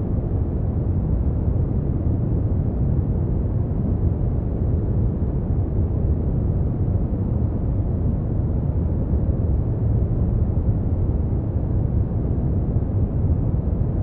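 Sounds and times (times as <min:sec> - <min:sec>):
deep rumbling brown noise: 0:00.0 - 0:14.0.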